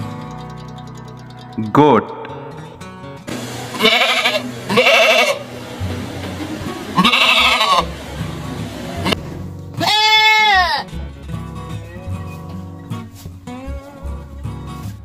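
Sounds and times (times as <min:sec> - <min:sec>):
background music: 0:00.0 - 0:15.0
goats bleating: 0:03.5 - 0:05.6, 0:06.4 - 0:08.3, 0:09.8 - 0:11.0.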